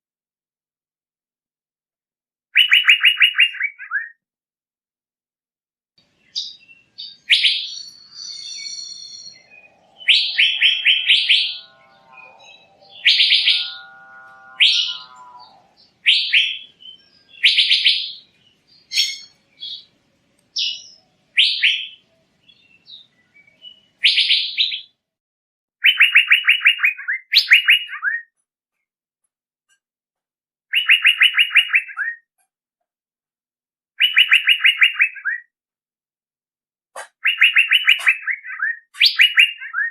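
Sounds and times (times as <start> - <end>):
bird calling in pulsed phrases: 6.4 - 19.9
low wavering notes: 8.8 - 16.2.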